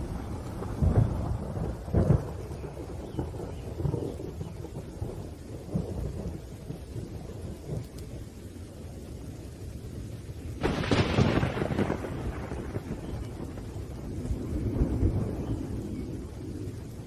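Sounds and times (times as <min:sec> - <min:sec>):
rolling thunder: 0:00.0 - 0:17.0
steady rain: 0:00.0 - 0:17.0
sharp thunder crack: 0:10.6 - 0:16.0.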